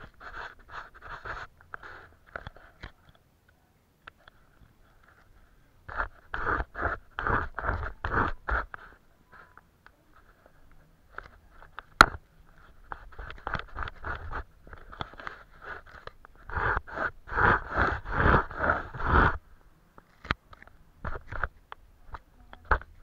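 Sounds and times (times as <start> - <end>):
paintbrush scraping on paper: 0.0 - 2.9, 4.4 - 19.4.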